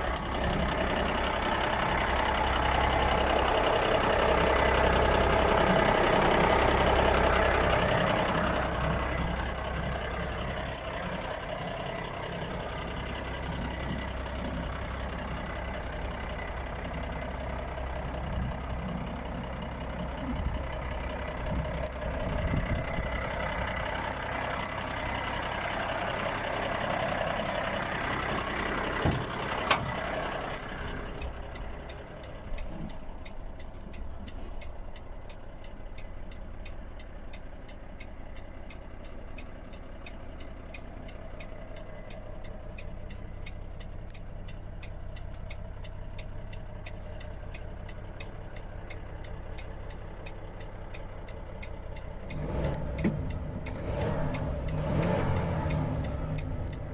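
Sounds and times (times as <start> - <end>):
diesel engine idling: 0.0 - 56.9
light ticking: 0.0 - 56.9
sharp clicks: 20.3 - 56.9.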